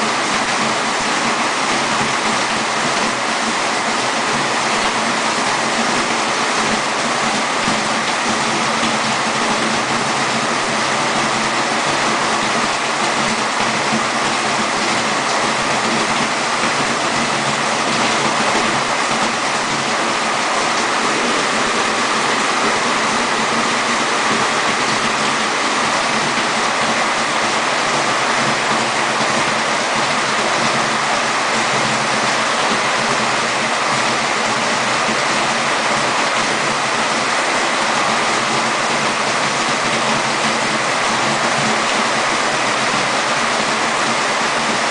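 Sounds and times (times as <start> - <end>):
heavy rain and running water: 0.0 - 44.9.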